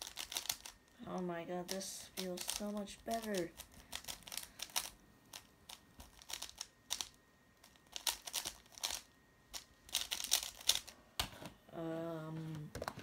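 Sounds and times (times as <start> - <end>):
puzzle cube clicking: 0.0 - 0.8, 1.7 - 10.9.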